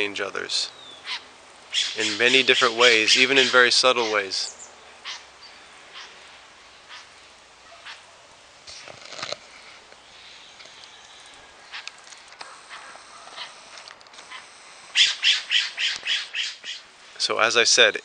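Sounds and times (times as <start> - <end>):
bird squawking: 0.7 - 6.2, 6.8 - 8.1, 10.2 - 16.9.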